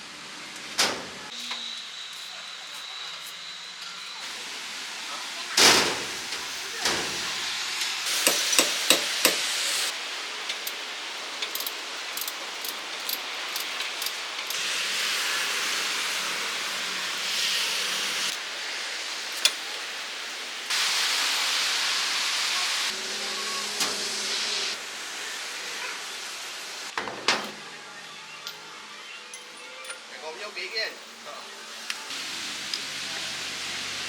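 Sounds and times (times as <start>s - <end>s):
gas hissing: 4.1s - 23.0s
sharp metallic knocks: 8.2s - 9.5s.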